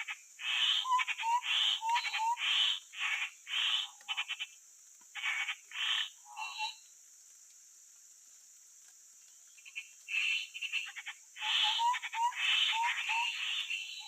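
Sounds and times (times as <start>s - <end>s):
bird harsh chattering calls: 0.0s - 4.5s, 9.6s - 14.0s.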